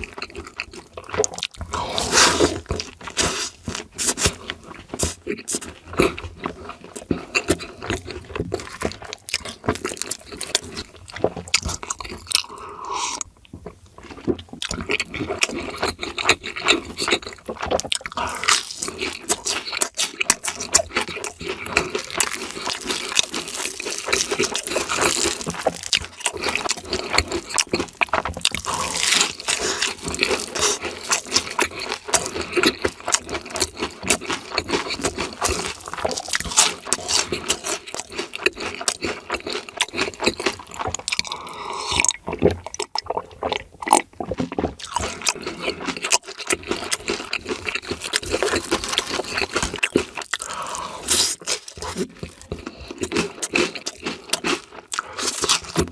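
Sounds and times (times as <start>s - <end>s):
wet chewing: 0.0s - 55.9s
crunchy bites: 14.1s - 55.9s.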